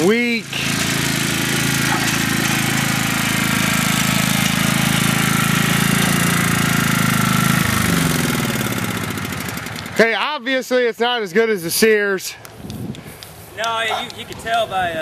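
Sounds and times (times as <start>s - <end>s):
lawn tractor engine running: 0.0s - 10.4s.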